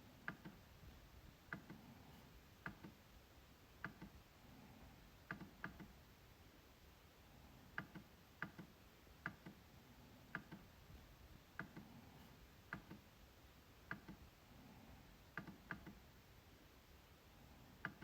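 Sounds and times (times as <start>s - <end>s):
trackpad clicks: 0.2s - 0.6s, 2.6s - 3.0s, 3.8s - 4.2s, 5.3s - 6.0s, 7.8s - 9.6s, 10.3s - 10.7s, 12.7s - 13.0s, 13.9s - 14.2s, 15.3s - 16.0s.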